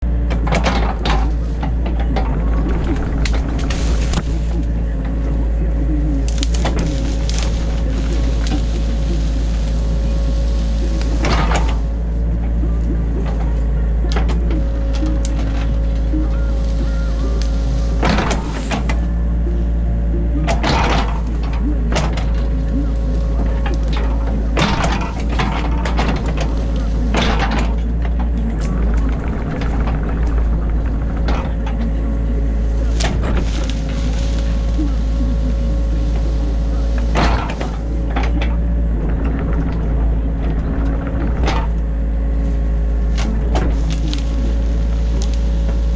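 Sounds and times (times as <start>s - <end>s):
excavator engine and hydraulics: 0.0s - 45.9s
hydraulic whine: 0.0s - 45.9s
machine knocks: 20.4s - 42.0s.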